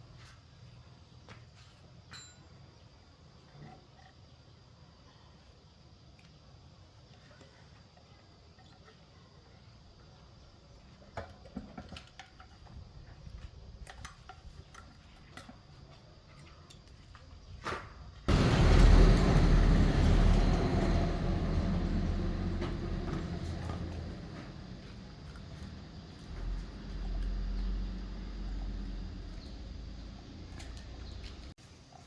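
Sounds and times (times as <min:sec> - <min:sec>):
air compressor humming: 0:18.3 - 0:25.1.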